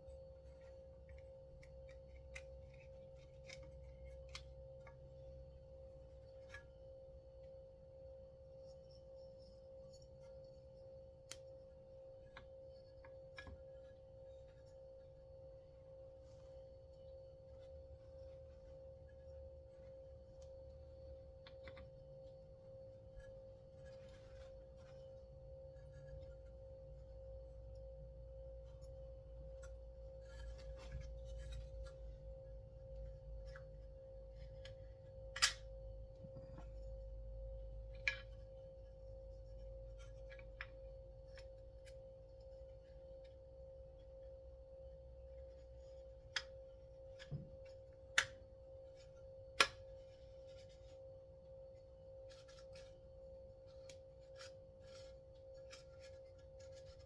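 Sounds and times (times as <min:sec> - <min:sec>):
steady electrical hum: 0:00.0 - 0:57.0
small clicks and taps of hand work: 0:21.4 - 0:21.9, 0:46.2 - 0:48.5.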